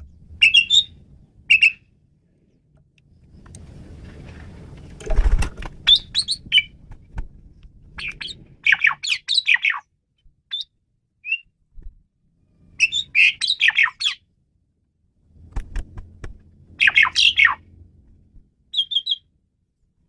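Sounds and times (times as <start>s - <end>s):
starling singing: 0.4s - 1.8s, 5.8s - 6.8s, 8.0s - 9.8s, 12.8s - 14.2s, 16.8s - 17.6s, 18.7s - 19.2s
thump: 11.8s - 12.0s.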